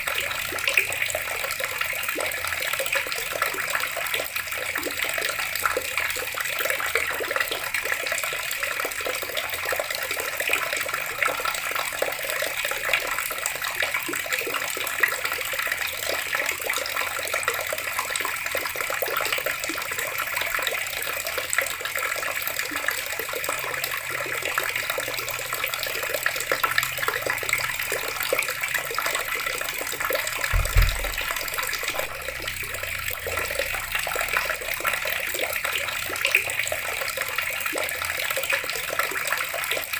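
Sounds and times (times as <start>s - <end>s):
water running from a tap: 0.0s - 39.9s
low thump: 30.5s - 33.2s.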